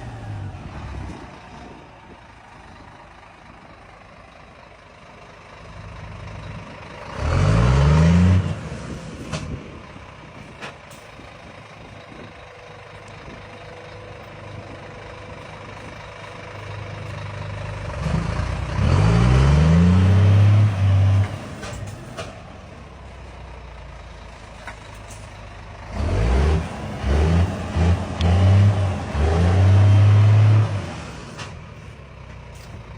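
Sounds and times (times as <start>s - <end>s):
model truck engine revving: 26.0s - 31.4s.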